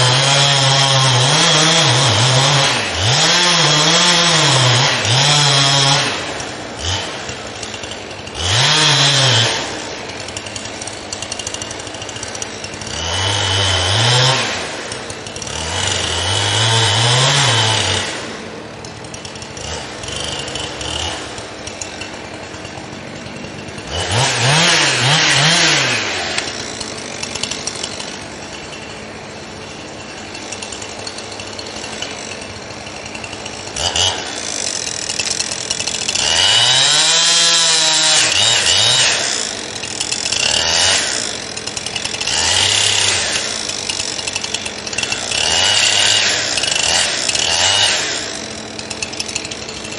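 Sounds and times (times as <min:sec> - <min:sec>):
chainsaw revving cutting wood: 0:00.0 - 0:49.9.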